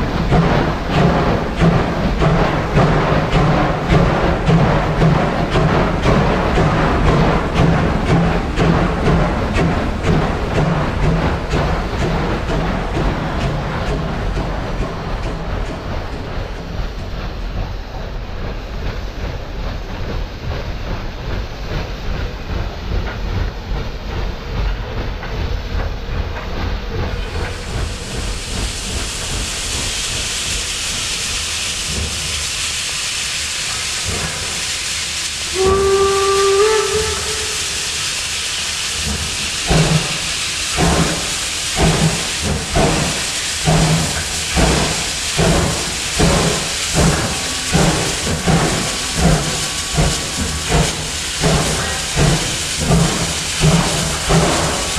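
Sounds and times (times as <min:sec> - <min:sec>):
locomotive exhaust chuffs: 0:00.0 - 0:54.9
loud steam hiss: 0:00.0 - 0:54.9
steam whistle: 0:35.5 - 0:38.3.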